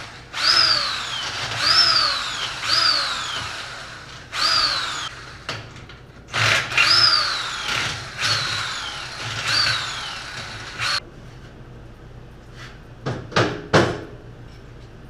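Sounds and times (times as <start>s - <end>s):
impact wrench bursts: 0.0s - 5.6s, 6.3s - 11.0s.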